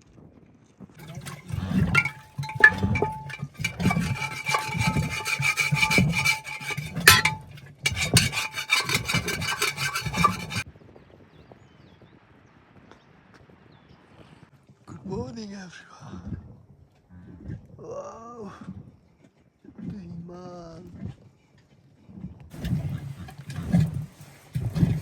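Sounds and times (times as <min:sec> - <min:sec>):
rhythmic scraping with dull thuds: 0:01.0 - 0:10.6, 0:22.5 - 0:25.0.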